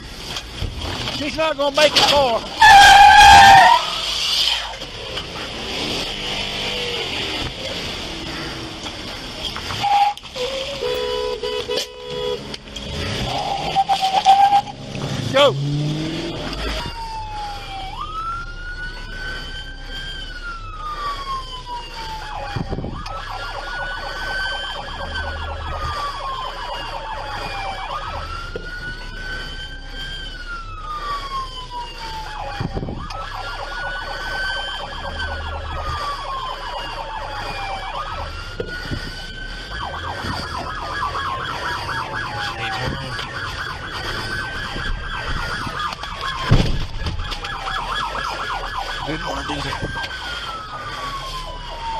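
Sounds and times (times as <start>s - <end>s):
police siren wailing: 0.0s - 51.9s.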